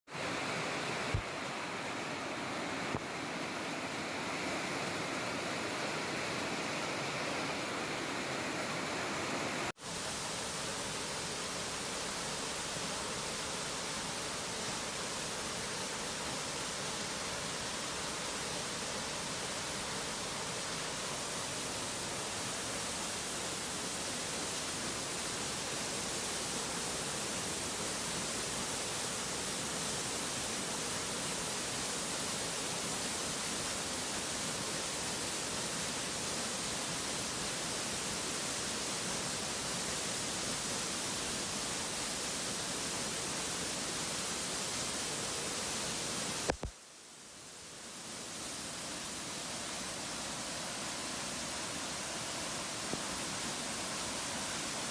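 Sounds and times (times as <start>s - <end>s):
heavy rain hissing: 0.1s - 54.9s
click: 46.5s - 46.8s.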